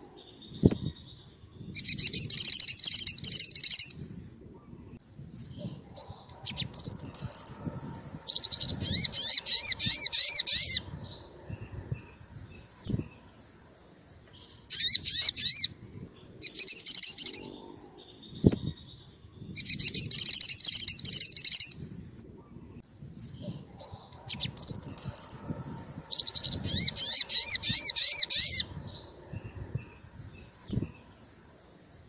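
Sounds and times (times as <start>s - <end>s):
bird trilled chattering: 1.8s - 3.9s, 5.3s - 7.5s, 8.3s - 10.8s, 14.7s - 15.7s, 16.4s - 17.5s, 19.6s - 21.8s, 23.2s - 25.4s, 26.1s - 28.7s.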